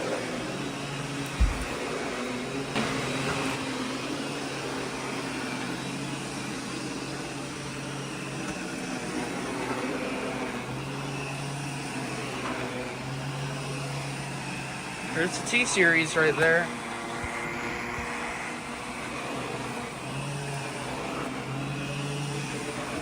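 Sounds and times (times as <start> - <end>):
vacuum cleaner running: 0.0 - 23.0
brief knock: 1.4 - 1.8.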